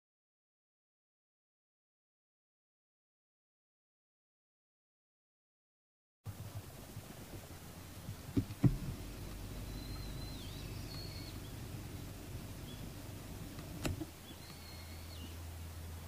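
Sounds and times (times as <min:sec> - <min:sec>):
steady low rumble: 0:06.3 - 0:16.0
sharp knocks: 0:08.3 - 0:08.9
high wavering bird call: 0:09.1 - 0:11.7, 0:14.2 - 0:15.4.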